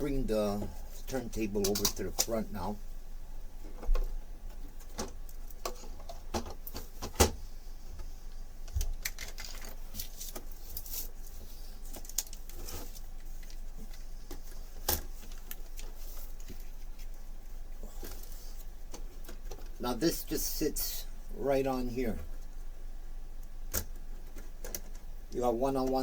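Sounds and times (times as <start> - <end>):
low steady hum: 0.0 - 26.0
plastic parts clicking and knocking: 1.6 - 2.3, 3.6 - 7.4, 8.7 - 10.5, 23.7 - 25.1.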